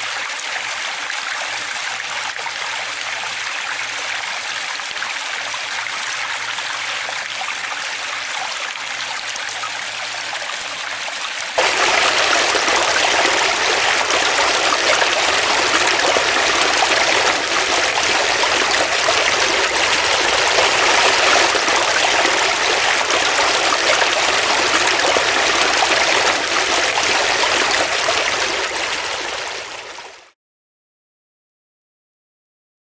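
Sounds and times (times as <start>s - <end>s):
stream water rushing: 11.6s - 30.2s.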